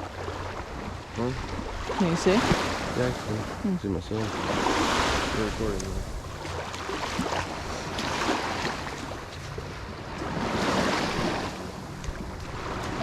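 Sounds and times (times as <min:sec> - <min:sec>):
small waves washing onto beach: 0:00.0 - 0:13.0
wind buffeting microphone: 0:00.6 - 0:13.0.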